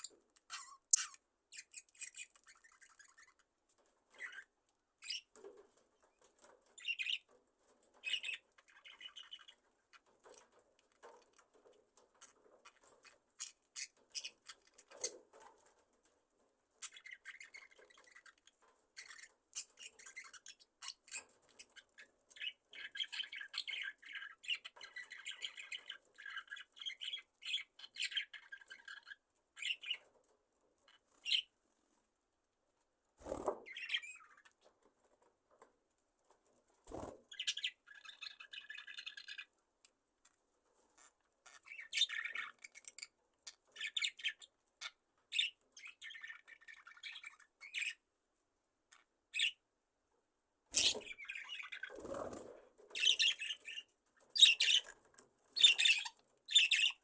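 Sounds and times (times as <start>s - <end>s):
budgerigars chattering: 50.8s - 52.4s, 53.0s - 55.0s, 55.6s - 57.0s.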